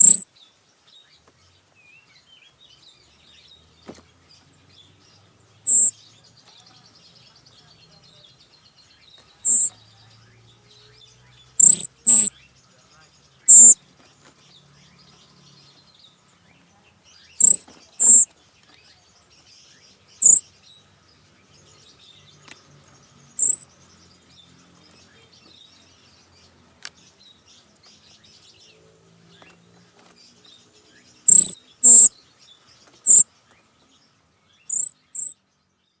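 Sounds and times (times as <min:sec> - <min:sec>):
bird sharp high-pitched calls: 0:00.0 - 0:00.4, 0:05.6 - 0:06.0, 0:09.1 - 0:09.8, 0:10.6 - 0:12.5, 0:13.4 - 0:13.8, 0:17.1 - 0:18.3, 0:20.2 - 0:20.6, 0:23.3 - 0:23.7, 0:30.8 - 0:32.2, 0:32.8 - 0:33.3, 0:34.6 - 0:35.4.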